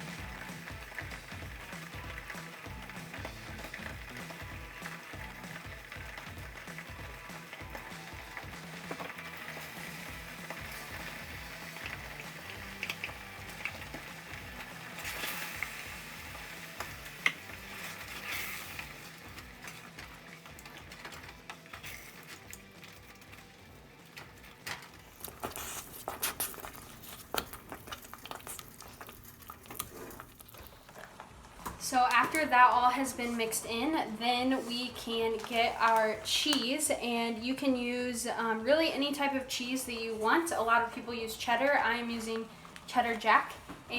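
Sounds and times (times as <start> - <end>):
spoon stirring thick mixture: 0.0 - 33.7.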